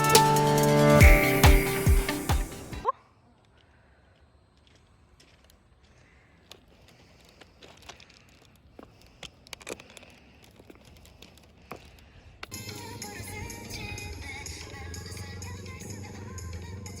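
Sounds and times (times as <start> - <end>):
light crinkling: 3.3 - 12.6.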